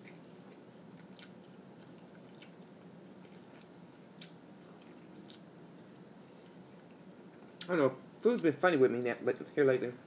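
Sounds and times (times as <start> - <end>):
chewing and wet mouth sounds: 0.0 - 7.7
low steady hum: 0.0 - 10.0.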